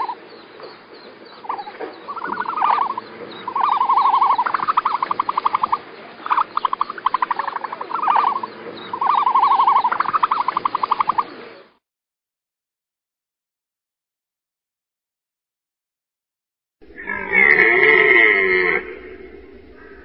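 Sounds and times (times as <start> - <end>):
animal trilling calls: 0.0 - 0.2, 1.4 - 11.4, 16.9 - 20.0.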